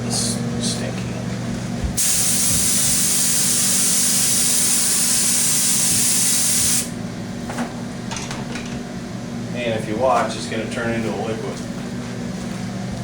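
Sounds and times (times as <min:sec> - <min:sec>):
spray hissing: 0:02.0 - 0:06.9.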